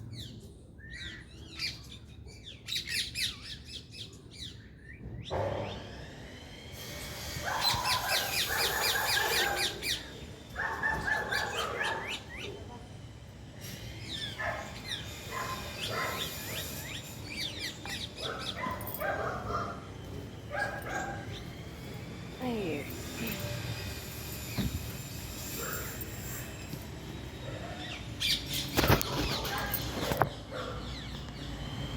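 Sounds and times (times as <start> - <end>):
parrots chirping and squawking: 7.1 - 12.6, 13.8 - 22.0, 22.8 - 31.2.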